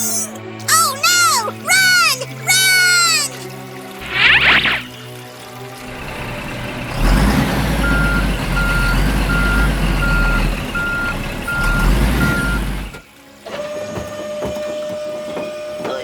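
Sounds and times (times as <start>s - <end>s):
heavy engine rumble: 5.8s - 13.1s
truck reversing alarm beeps: 6.9s - 13.0s.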